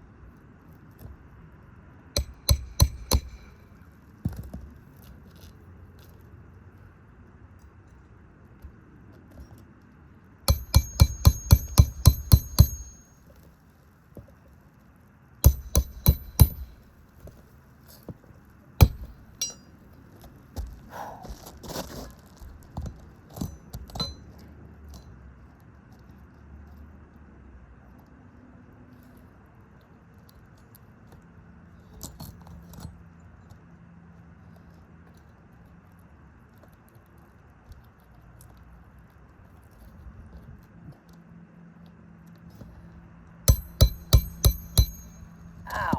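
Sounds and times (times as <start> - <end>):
low steady hum: 0.0 - 9.0, 10.0 - 21.6, 38.8 - 45.9
hammer nailing shingle: 2.2 - 3.6, 10.5 - 13.1, 15.4 - 16.8, 18.8 - 19.7, 43.5 - 45.9
metal tool clicking and scraping: 2.2 - 3.6, 10.5 - 13.1, 15.4 - 16.8, 18.8 - 19.8, 23.4 - 25.0, 43.5 - 45.4.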